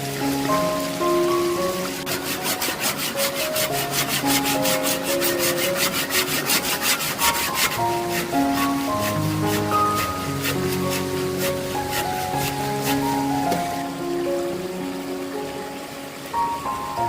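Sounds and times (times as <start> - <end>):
soft instrumental music: 0.0 - 17.0
hand saw cutting wood: 1.9 - 13.7.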